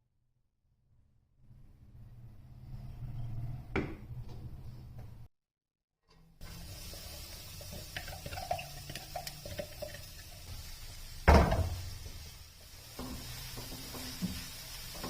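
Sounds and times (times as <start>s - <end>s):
loud knock: 11.3s - 11.8s.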